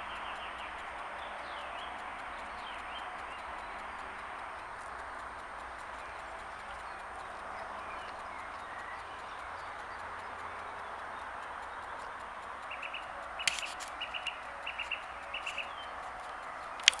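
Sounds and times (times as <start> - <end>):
songbird chirping: 0.0 - 17.0
steady rushing background: 0.0 - 17.0
sharp click: 12.8 - 17.0.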